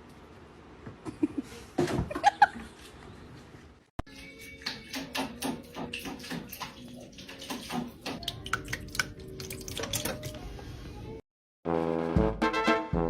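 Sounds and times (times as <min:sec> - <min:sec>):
water splashing and sloshing: 0:04.0 - 0:11.2.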